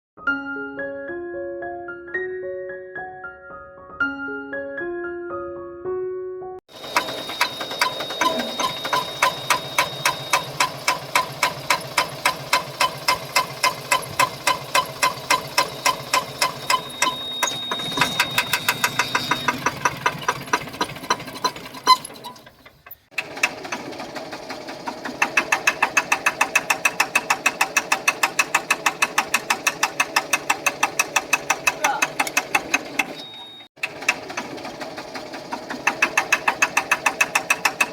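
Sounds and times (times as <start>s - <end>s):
diesel engine knocking: 6.7s - 22.0s, 23.1s - 33.2s, 33.8s - 37.9s.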